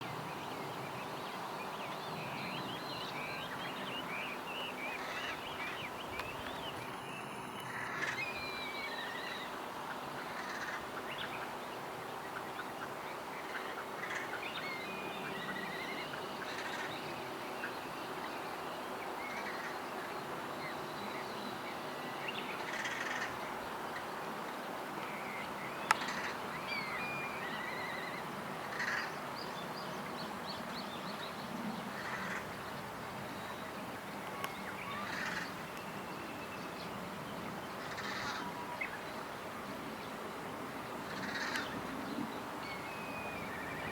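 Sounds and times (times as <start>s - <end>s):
crows cawing: 28.7s - 29.1s, 35.0s - 35.6s, 37.9s - 38.5s, 41.1s - 41.7s.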